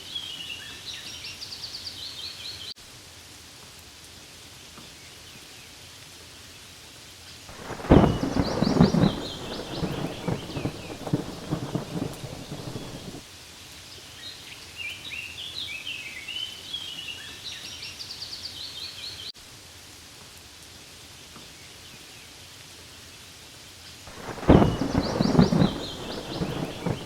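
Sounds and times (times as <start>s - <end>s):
rain falling on leaves: 0.0s - 27.0s
thunder rumble: 7.5s - 13.2s, 24.1s - 27.0s.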